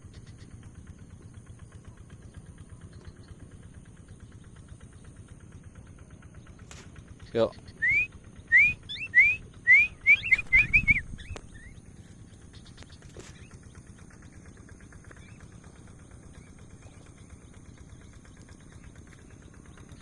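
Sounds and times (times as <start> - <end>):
falcon whistled chirps: 7.6 - 11.8.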